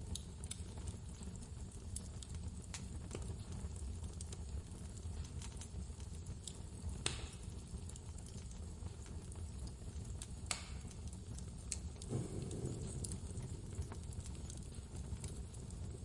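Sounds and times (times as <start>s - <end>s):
wood fire crackling and popping: 0.0s - 16.0s
deep low rumble: 12.0s - 16.0s
low blizzard wind: 12.1s - 16.0s.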